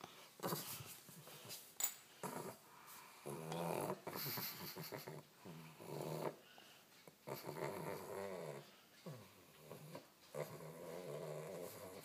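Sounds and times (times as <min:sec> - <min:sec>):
dog snorting rattling breaths: 0:03.6 - 0:05.2, 0:07.0 - 0:12.0.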